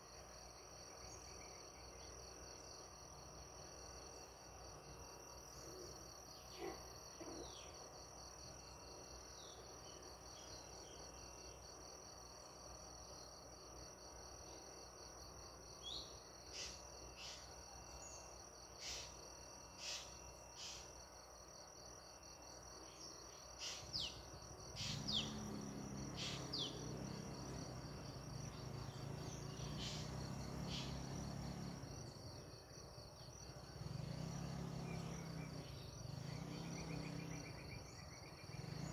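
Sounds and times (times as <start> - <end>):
cricket chorus trill: 0.0 - 38.9
bird chirps: 23.0 - 32.3.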